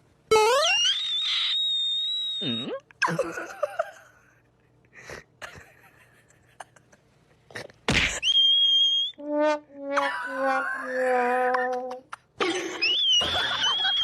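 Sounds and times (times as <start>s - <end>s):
high whistle-like tone: 8.2s - 9.2s, 13.4s - 14.0s.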